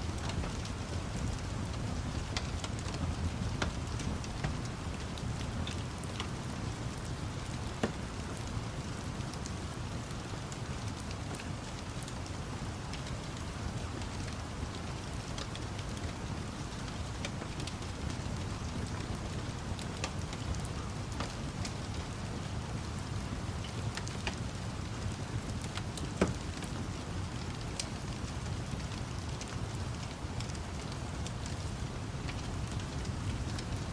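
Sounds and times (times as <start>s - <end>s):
fire crackling: 0.0s - 33.9s
steady rain: 0.0s - 33.9s.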